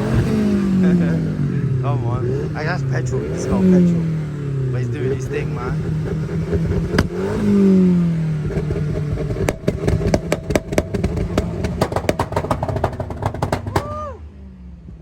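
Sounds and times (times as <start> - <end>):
car engine revving: 0.0 - 15.0
exhaust pops and crackles: 4.8 - 14.2.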